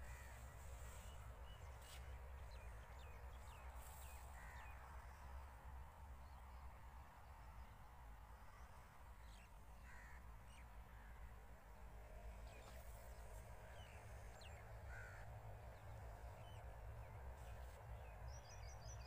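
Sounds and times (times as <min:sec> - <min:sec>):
faint bird calls: 0:00.0 - 0:02.8, 0:13.7 - 0:16.6.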